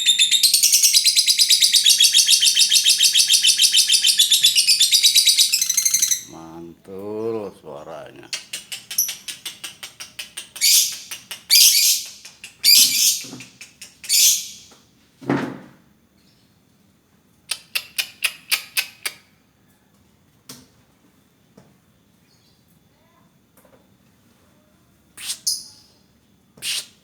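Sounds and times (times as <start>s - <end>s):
bird screeching: 0.0s - 6.3s
bird chirping: 0.0s - 6.6s, 7.7s - 14.7s.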